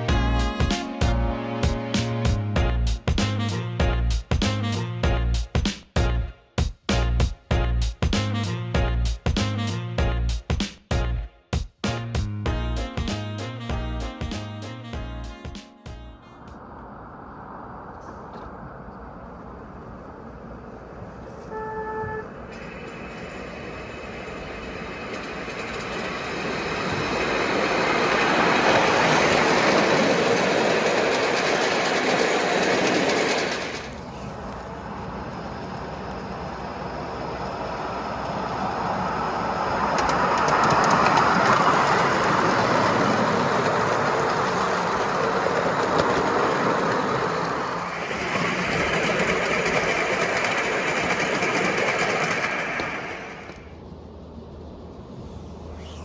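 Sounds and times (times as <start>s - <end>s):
miniature train wheels rumbling on rails: 22.4s - 53.7s.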